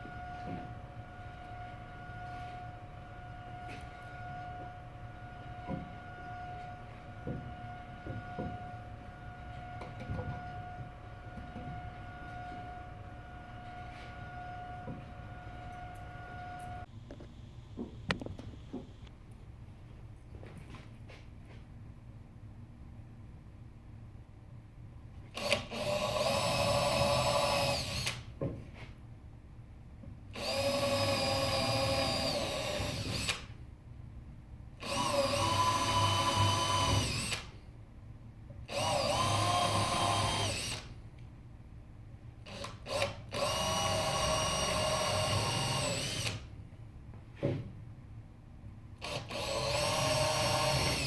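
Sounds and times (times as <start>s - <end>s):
power drill motor whine: 0.0s - 16.9s, 25.4s - 28.3s, 30.4s - 33.5s, 34.8s - 37.6s, 38.7s - 41.0s, 42.5s - 46.5s, 49.0s - 51.0s.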